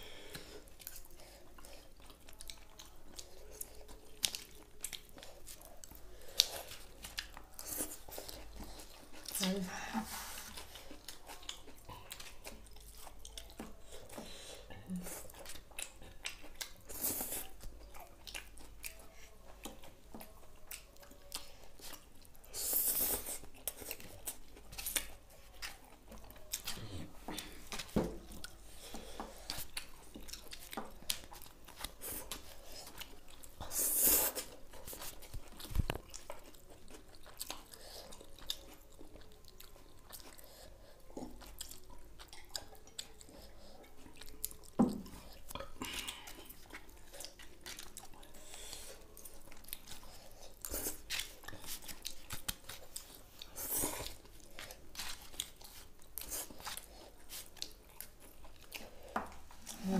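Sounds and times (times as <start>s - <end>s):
people chewing noodles: 0.0s - 59.9s.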